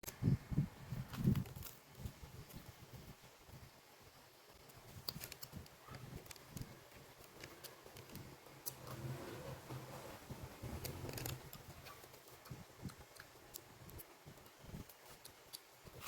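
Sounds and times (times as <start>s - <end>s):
crackly clicks: 4.6s - 9.1s, 10.6s - 16.0s.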